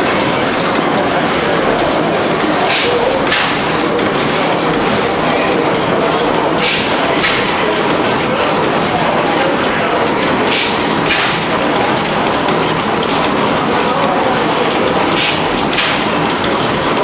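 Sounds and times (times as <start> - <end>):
old engines clattering: 0.0 - 17.0.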